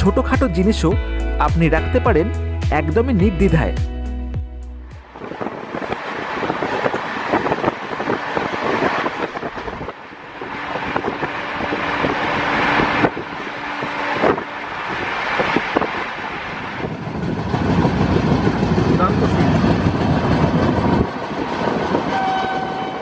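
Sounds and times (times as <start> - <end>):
train running noise: 4.7 - 23.0.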